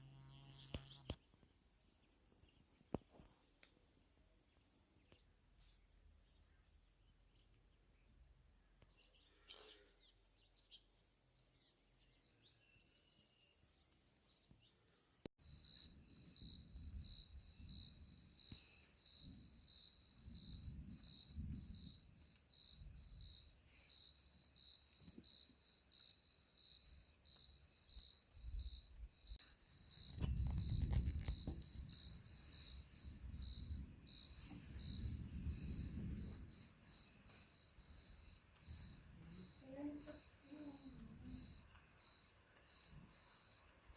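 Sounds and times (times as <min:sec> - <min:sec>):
crickets chirping: 0:15.4 - 0:43.9.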